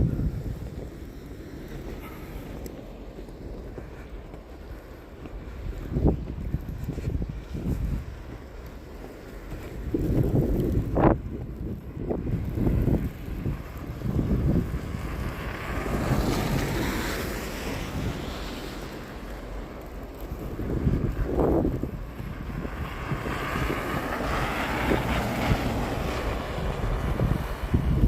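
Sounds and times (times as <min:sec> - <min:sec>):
low rumble: 0:00.0 - 0:01.2
wind buffeting microphone: 0:00.0 - 0:28.0.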